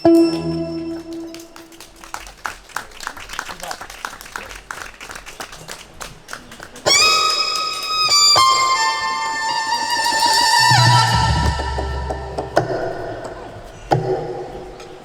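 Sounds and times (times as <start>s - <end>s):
violin high held notes: 0.0s - 1.9s, 6.9s - 13.6s.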